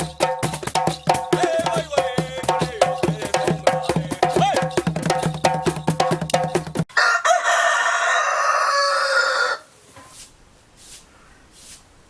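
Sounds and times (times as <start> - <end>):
drum and percussion music: 0.0 - 6.9
rooster crowing: 6.9 - 9.8.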